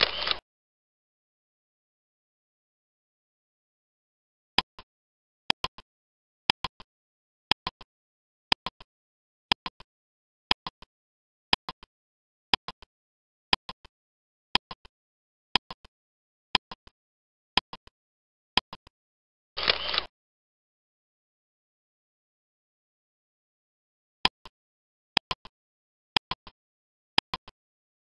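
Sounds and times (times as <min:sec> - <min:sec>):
clock ticking: 0:04.6 - 0:04.9, 0:05.5 - 0:05.9, 0:06.5 - 0:06.9, 0:07.5 - 0:07.9, 0:08.5 - 0:08.9, 0:09.5 - 0:09.9, 0:10.5 - 0:10.9, 0:11.5 - 0:11.9, 0:12.5 - 0:12.9, 0:13.5 - 0:13.9, 0:14.5 - 0:14.9, 0:15.6 - 0:15.9, 0:16.6 - 0:17.0, 0:17.6 - 0:18.0, 0:18.6 - 0:19.0, 0:25.2 - 0:25.6, 0:26.2 - 0:26.6, 0:27.2 - 0:27.6.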